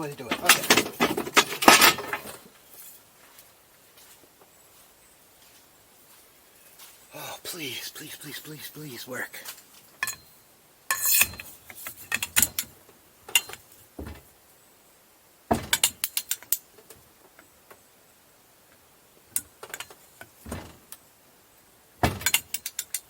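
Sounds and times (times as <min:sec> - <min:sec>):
metal hand tools clinking: 0:10.9 - 0:12.7.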